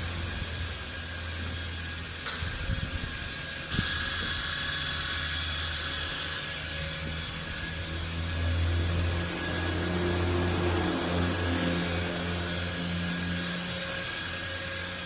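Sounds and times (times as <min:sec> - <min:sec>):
small electric motor whirring: 0:00.0 - 0:15.0.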